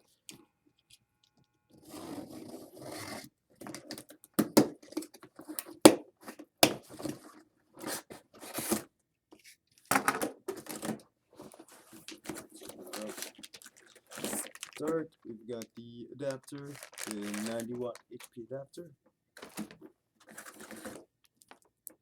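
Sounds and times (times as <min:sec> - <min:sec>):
cardboard tearing and crinkling: 0:10.6 - 0:18.3, 0:19.4 - 0:21.6.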